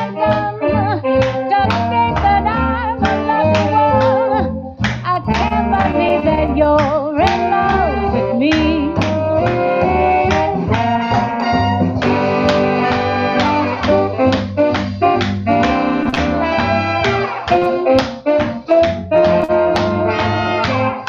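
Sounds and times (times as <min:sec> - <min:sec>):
swing jazz band with horns: 0:00.0 - 0:21.0.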